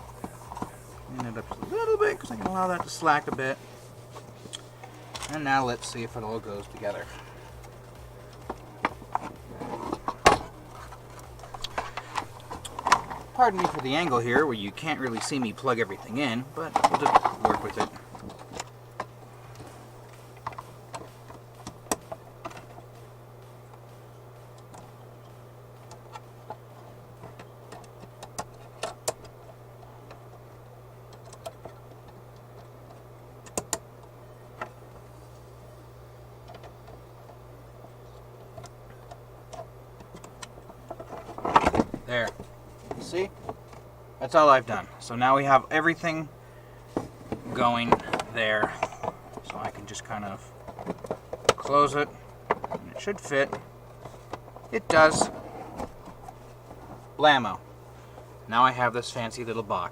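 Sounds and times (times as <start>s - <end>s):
plastic parts handled: 0.0s - 23.0s, 36.4s - 43.9s, 45.8s - 58.4s
steady low hum: 0.0s - 59.9s
connectors clicking: 4.2s - 35.2s, 36.3s - 43.9s.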